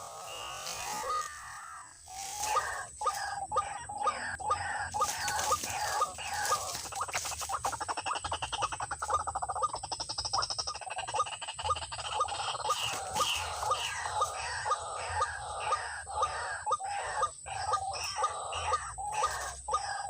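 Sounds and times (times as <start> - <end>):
waterhen calling: 0.0 - 9.2, 11.2 - 20.0.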